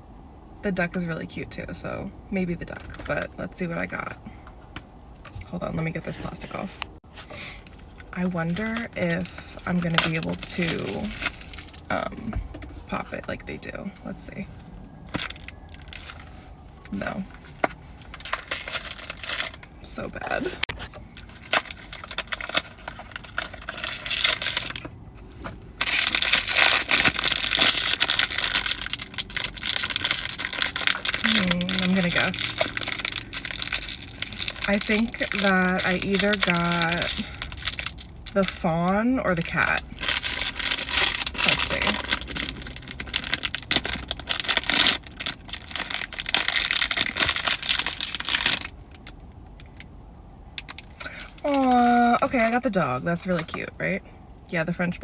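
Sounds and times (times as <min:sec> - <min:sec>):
rustles crackles and clicks: 0:04.4 - 0:49.9
packaging crinkling by hand: 0:07.4 - 0:12.8, 0:15.0 - 0:38.6, 0:39.4 - 0:49.9, 0:50.6 - 0:53.6.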